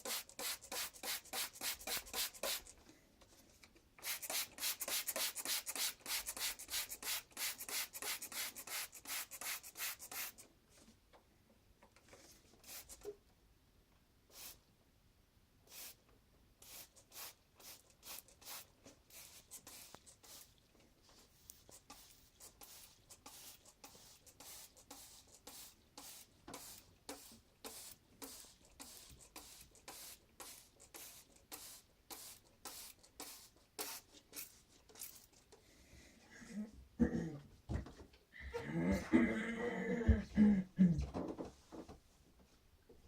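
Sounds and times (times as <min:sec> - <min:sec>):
scratching and rustling strokes: 0:16.7 - 0:35.6.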